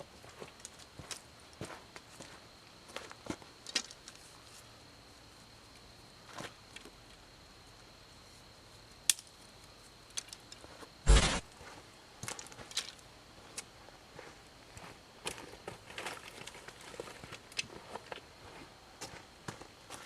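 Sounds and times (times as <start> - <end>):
loud thump: 11.1 - 11.5.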